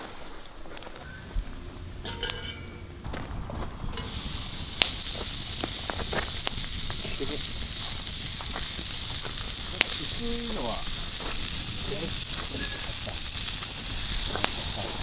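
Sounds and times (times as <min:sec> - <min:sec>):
food sizzling in hot pan: 0:03.9 - 0:15.0.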